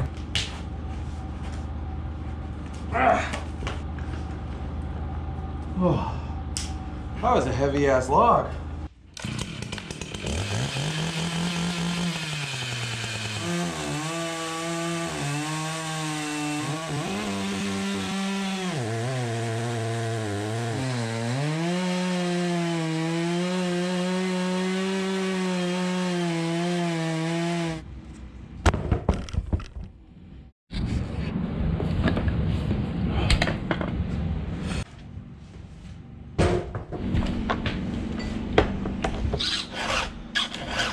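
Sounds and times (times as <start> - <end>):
chainsaw cutting wood: 9.2 - 27.8, 39.4 - 40.9
knocks and clatters: 28.6 - 30.0.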